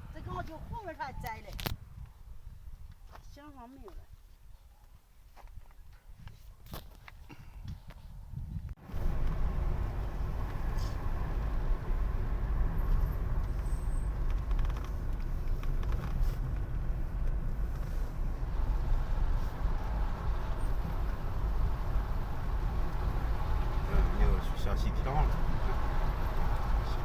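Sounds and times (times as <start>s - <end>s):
road vehicle rumbling: 8.8s - 27.0s.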